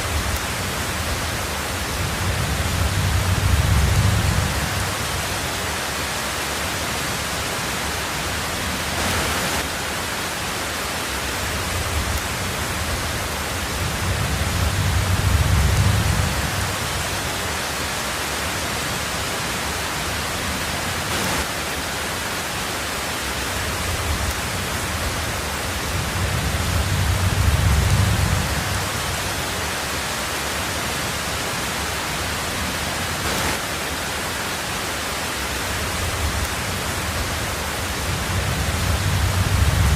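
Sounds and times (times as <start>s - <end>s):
thunder rumble: 0.0s - 5.6s, 11.5s - 17.4s, 23.6s - 29.6s, 35.7s - 39.9s
heavy rain: 0.0s - 39.9s.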